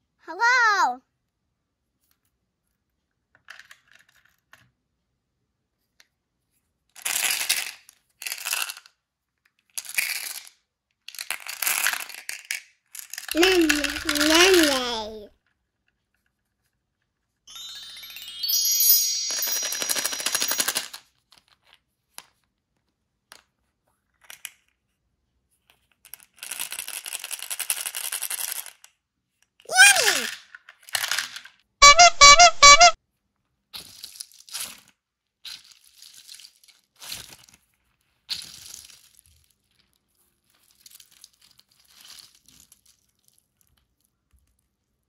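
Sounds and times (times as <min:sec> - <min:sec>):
hard candies rattling in plastic cups: 0:09.6 - 0:15.2, 0:26.1 - 0:28.8, 0:33.8 - 0:37.6
short loud jingle: 0:17.5 - 0:20.9
falling whistle: 0:31.8 - 0:33.0.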